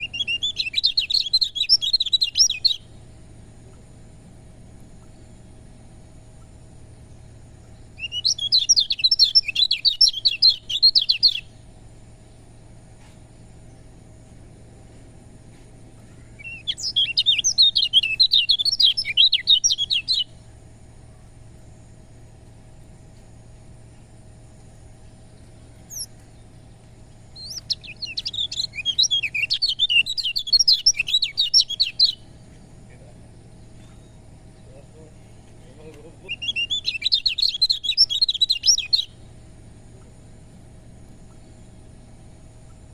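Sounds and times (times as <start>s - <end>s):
bird chirping rapidly: 0.0s - 3.2s, 7.2s - 11.6s, 16.2s - 20.4s, 25.1s - 32.6s, 36.1s - 39.3s
faint steady hum: 0.0s - 42.9s.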